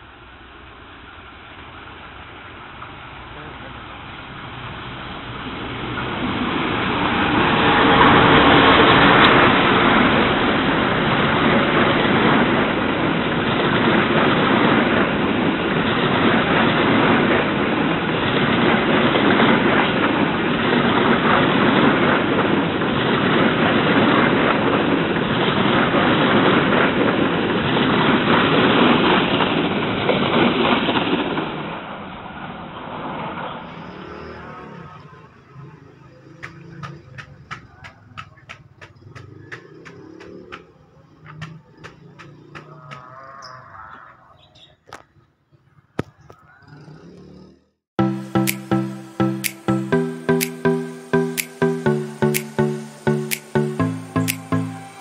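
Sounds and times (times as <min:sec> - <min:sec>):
diesel locomotive passing: 0:00.0 - 0:18.7, 0:33.0 - 0:43.2
train wheels clattering on rails: 0:36.4 - 0:43.1.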